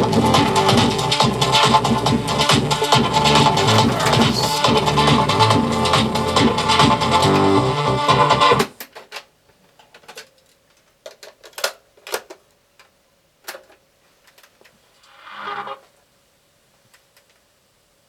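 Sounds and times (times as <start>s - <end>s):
music from cassette: 0.0s - 8.8s.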